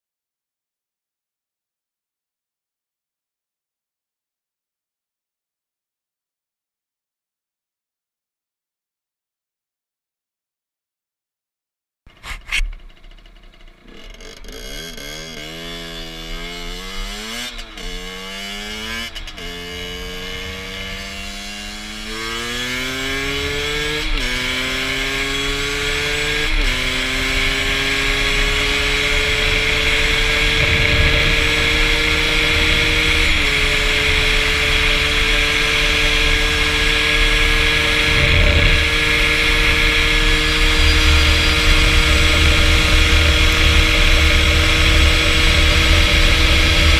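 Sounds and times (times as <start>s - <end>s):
motorcycle engine accelerating: 12.1s - 46.9s
wind noise: 25.1s - 46.9s.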